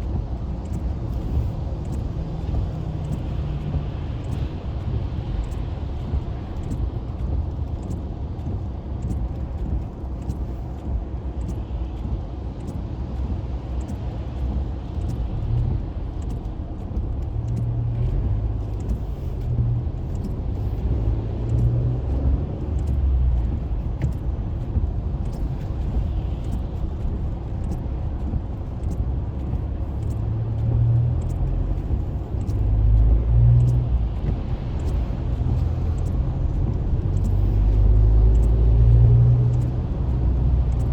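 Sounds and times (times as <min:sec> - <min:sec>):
engine and tyres rumbling: 0:00.0 - 0:40.9
faint regular ticks: 0:13.8 - 0:40.9.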